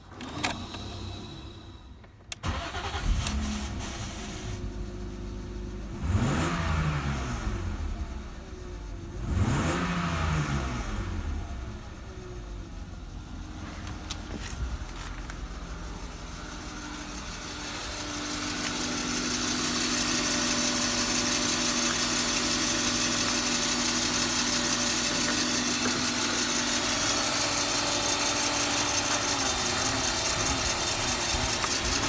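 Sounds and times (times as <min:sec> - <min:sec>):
car engine starting and idling: 0:00.0 - 0:32.0
engine revving: 0:05.6 - 0:08.4, 0:09.0 - 0:11.8, 0:16.6 - 0:32.0.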